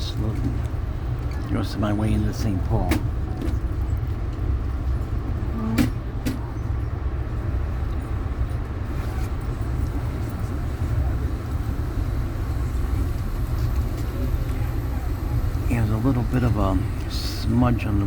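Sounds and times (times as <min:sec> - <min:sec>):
train rumble inside coach: 0:00.0 - 0:18.0.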